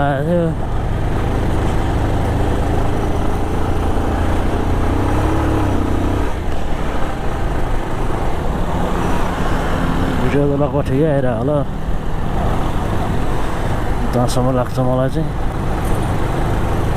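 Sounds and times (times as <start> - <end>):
motorcycle engine running: 0.0 - 10.2, 15.2 - 16.9
road and traffic noise: 0.0 - 16.9.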